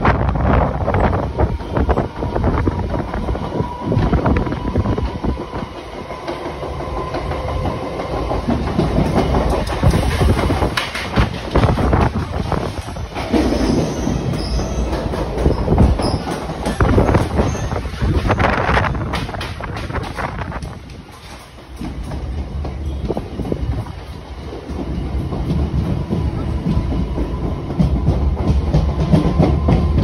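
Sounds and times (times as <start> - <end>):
clickety-clack over rail joints: 0.0 - 30.0
train wheels rumbling on rails: 0.0 - 30.0.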